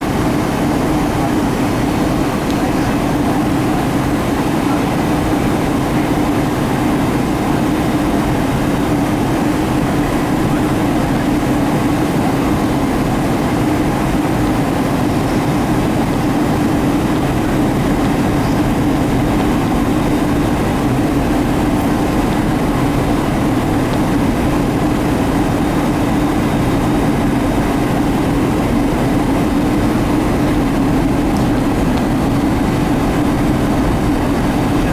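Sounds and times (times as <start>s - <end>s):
airplane engines droning: 0.0s - 34.9s
low hum: 12.6s - 34.9s.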